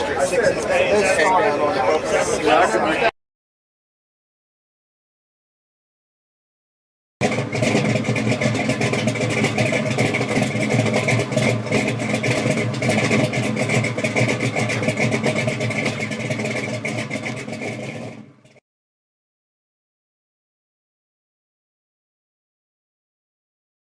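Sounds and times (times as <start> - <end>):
car engine crackling: 7.2 - 18.6.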